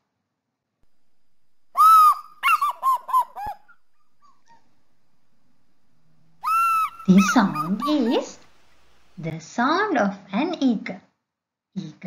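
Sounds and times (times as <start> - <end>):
faint recording hiss: 0.8 - 11.0
eagle calling: 0.9 - 9.3.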